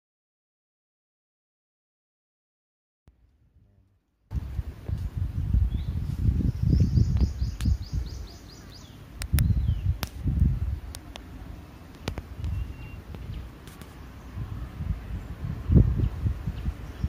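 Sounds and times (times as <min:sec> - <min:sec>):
low rumbling noise: 0:03.1 - 0:17.0
birds chirping: 0:04.4 - 0:17.0
sharp snaps: 0:07.2 - 0:07.8, 0:09.2 - 0:11.3, 0:11.9 - 0:14.0
descending bird trill: 0:12.4 - 0:14.5.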